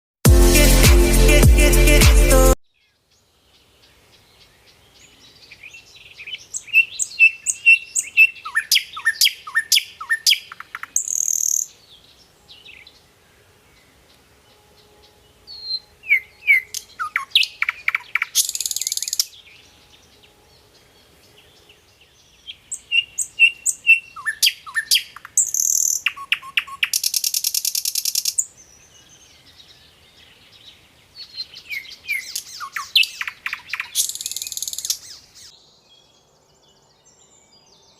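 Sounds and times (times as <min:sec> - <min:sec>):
songbird singing whistled trills: 0:05.0 - 0:12.9, 0:14.5 - 0:20.7, 0:22.4 - 0:29.9, 0:30.7 - 0:36.2.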